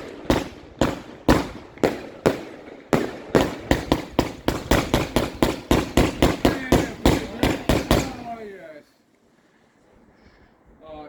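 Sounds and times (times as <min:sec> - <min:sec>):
firework cake sharp bangs: 0:00.0 - 0:08.6.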